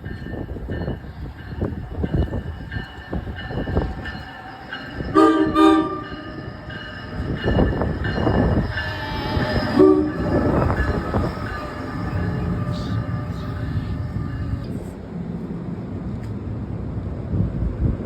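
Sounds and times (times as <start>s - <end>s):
train wheels on track: 0.0s - 18.0s
train horn: 5.0s - 6.4s, 8.3s - 14.8s.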